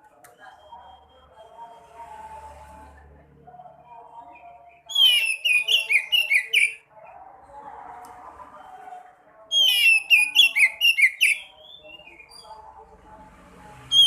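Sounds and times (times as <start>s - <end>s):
bird whistling repeated notes: 4.9s - 6.8s, 9.5s - 12.4s.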